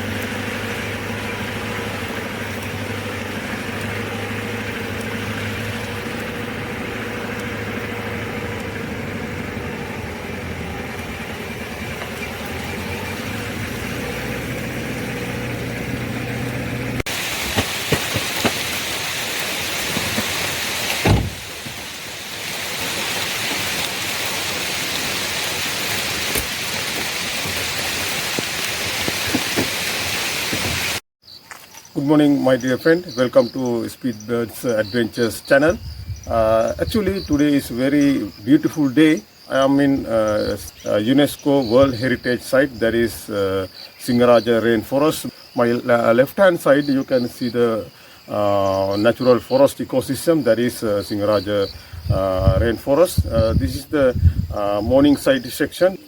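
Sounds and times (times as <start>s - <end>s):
vehicle engine running: 0.0s - 31.0s, 34.2s - 46.2s, 50.8s - 55.1s
steady hiss: 17.1s - 31.0s
thump: 21.0s - 21.8s.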